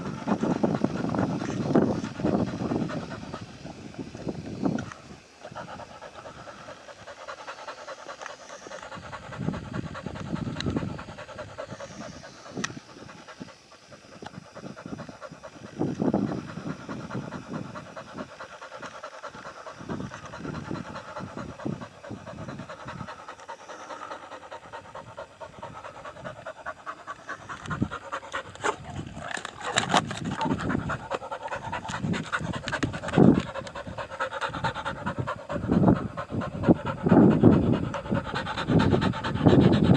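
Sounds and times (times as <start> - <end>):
pigs chewing and crunching: 26.4 - 37.0.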